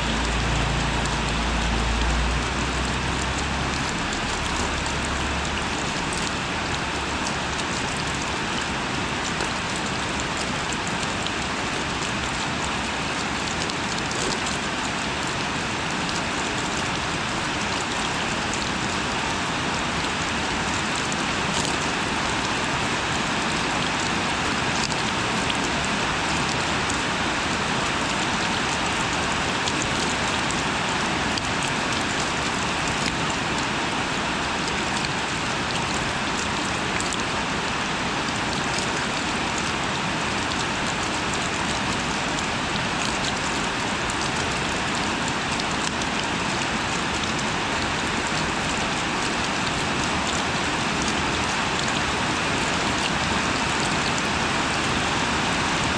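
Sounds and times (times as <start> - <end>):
steady rain falling: 0.0 - 55.9
raindrop ticks: 0.1 - 19.4, 38.4 - 48.8.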